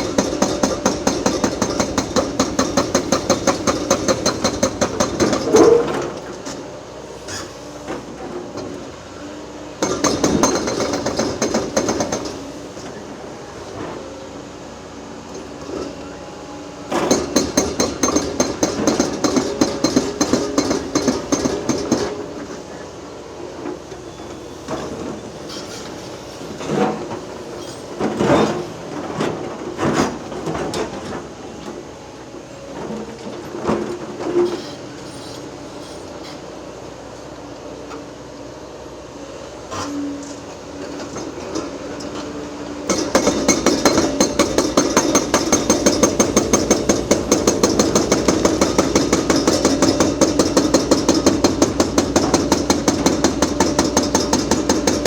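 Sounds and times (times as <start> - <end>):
hydraulic breaker hammering concrete: 0.0 - 6.1, 9.8 - 12.5, 16.9 - 22.3, 42.8 - 55.0
excavator engine running: 0.0 - 6.4, 39.6 - 55.0
clanks of concrete and steel: 0.0 - 6.6, 39.7 - 55.0.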